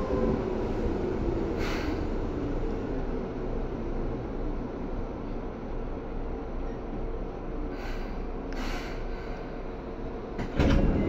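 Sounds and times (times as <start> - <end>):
train interior rumble: 0.0 - 11.0.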